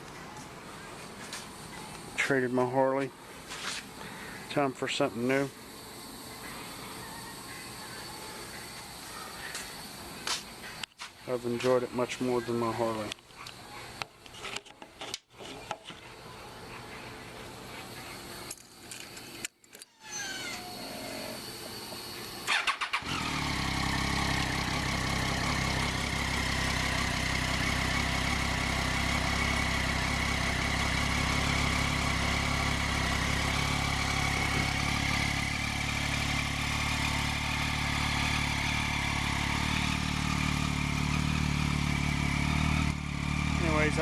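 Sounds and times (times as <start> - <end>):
motorcycle engine idling: 21.5 - 44.0
motorcycle engine cranking: 22.5 - 26.6.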